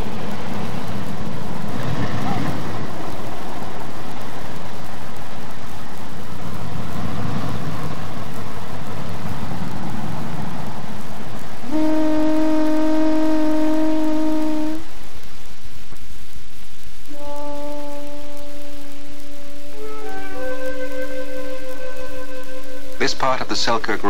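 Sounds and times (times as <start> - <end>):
diesel train rumbling past: 0.0 - 15.0
steady held horn note: 11.6 - 15.3, 17.0 - 24.0.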